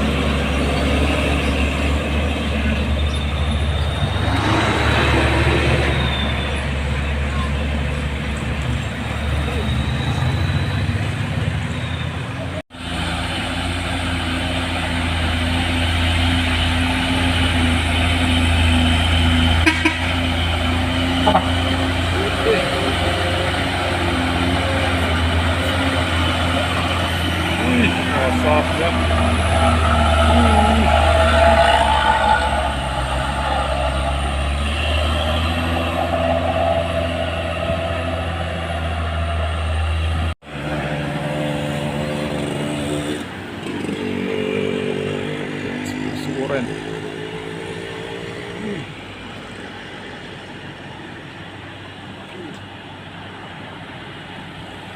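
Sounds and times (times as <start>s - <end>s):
truck diesel engine under load: 0.0s - 54.9s.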